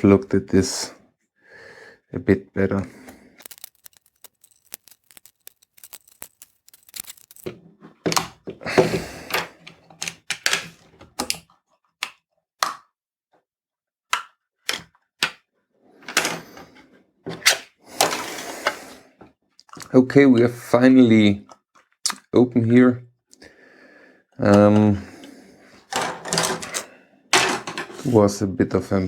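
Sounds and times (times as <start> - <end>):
plastic scraping and cracking: 3.4 - 8.6.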